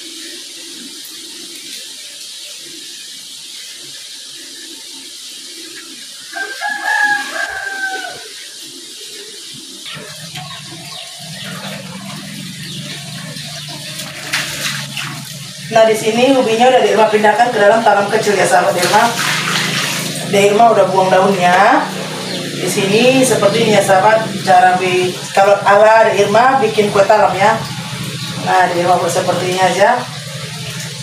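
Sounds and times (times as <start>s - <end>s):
rooster crowing: 6.3s - 8.5s
steady low hum: 9.9s - 31.0s.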